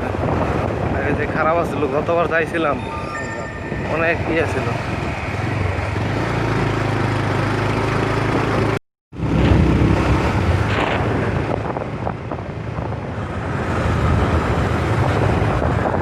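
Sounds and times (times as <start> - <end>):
wind noise on microphone: 0.0 - 6.8, 7.8 - 16.0
motorcycle running: 4.0 - 16.0.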